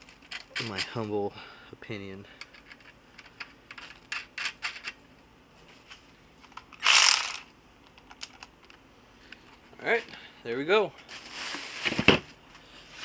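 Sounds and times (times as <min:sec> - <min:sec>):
loud rasping burst: 0:06.8 - 0:07.4.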